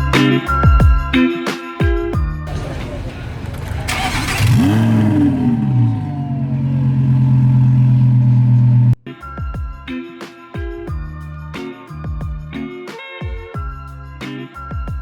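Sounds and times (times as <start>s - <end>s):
car engine revving and idling: 2.5s - 9.0s.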